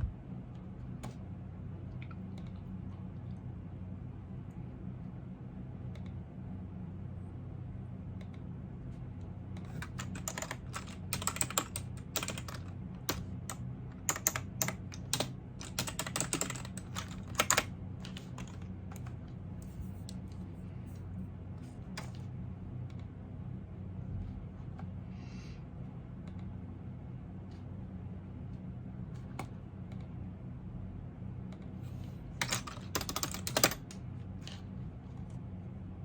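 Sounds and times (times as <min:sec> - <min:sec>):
low steady hum: 0:00.0 - 0:36.0
typing on computer keyboard: 0:09.6 - 0:19.2, 0:32.4 - 0:34.0.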